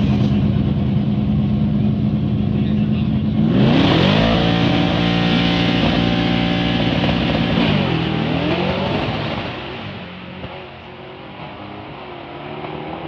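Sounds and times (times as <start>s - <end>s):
drag race car engine revving: 2.4s - 13.0s.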